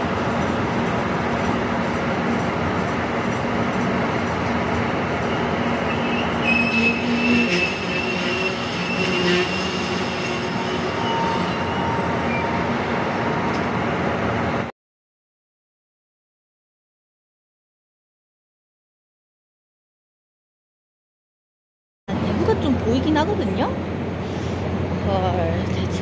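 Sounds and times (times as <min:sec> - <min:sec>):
train wheels rumbling on rail: 0:00.0 - 0:14.7
high wheel squeal: 0:05.2 - 0:14.0.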